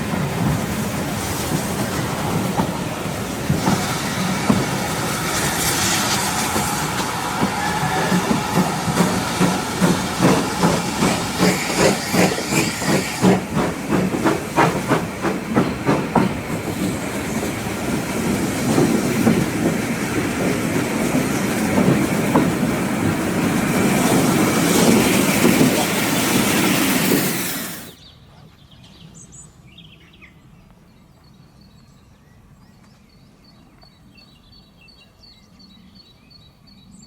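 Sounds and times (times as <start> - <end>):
steam locomotive exhaust beat: 0.0 - 28.0
train running noise: 0.0 - 28.0.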